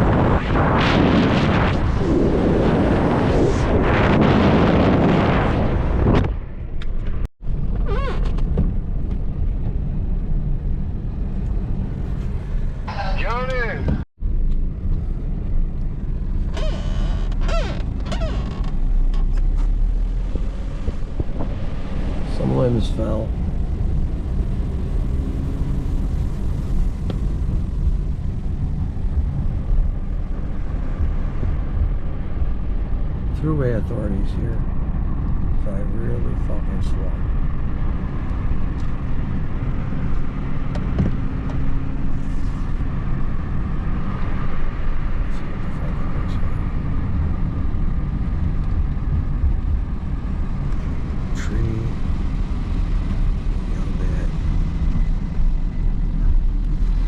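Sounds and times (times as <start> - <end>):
car road rumble: 0.0 - 57.0
short squeaks: 7.8 - 8.5, 16.5 - 19.6.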